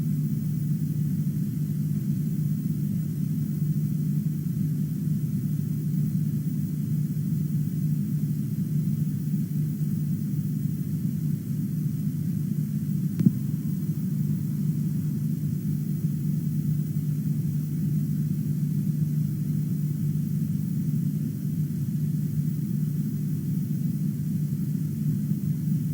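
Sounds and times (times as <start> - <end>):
steady low rumble: 13.0 - 16.5.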